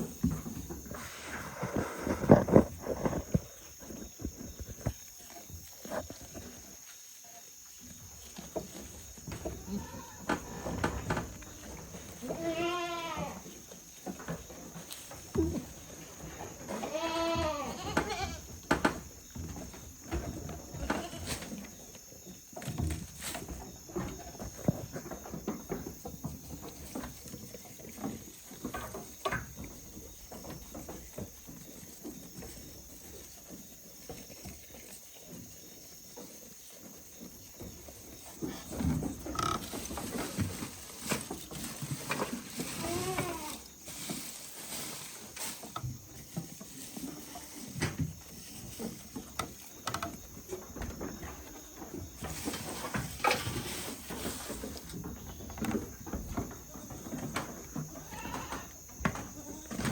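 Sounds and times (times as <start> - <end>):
knocks and rustles: 7.8 - 35.6, 36.2 - 59.9
goats bleating: 16.8 - 18.4.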